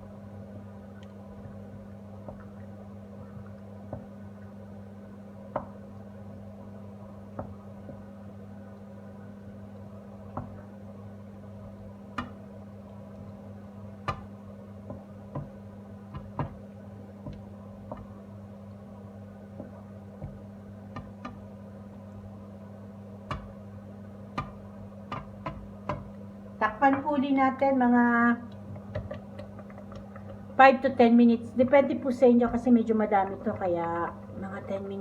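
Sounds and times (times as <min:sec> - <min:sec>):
steady low hum: 0:00.0 - 0:35.0
sauce simmering: 0:28.5 - 0:30.8.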